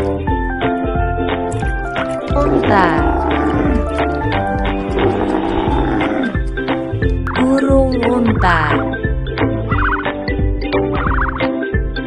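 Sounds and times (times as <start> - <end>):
background music: 0.0 - 12.0
camel calling: 2.3 - 7.2.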